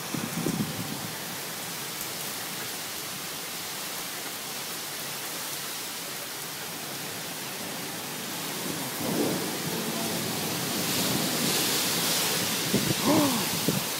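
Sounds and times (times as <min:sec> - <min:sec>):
heavy rain pouring: 0:00.0 - 0:13.9
low thunder rumble: 0:08.5 - 0:13.9.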